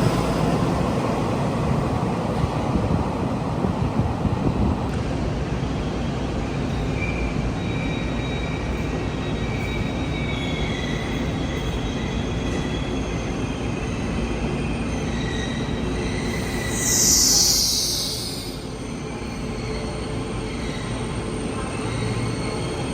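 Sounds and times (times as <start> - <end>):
train rumbling on track: 0.0 - 22.9
high wheel squeals: 7.0 - 22.9.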